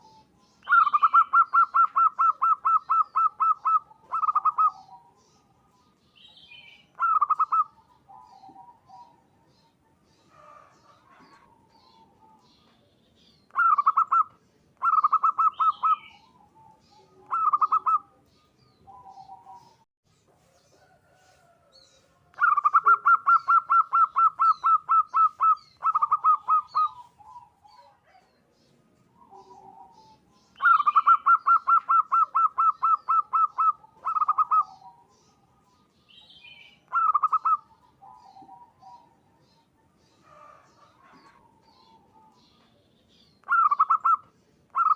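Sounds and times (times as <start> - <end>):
dove cooing: 0.0 - 19.8, 22.4 - 42.7, 43.4 - 44.9
small birds chirping: 0.0 - 44.9.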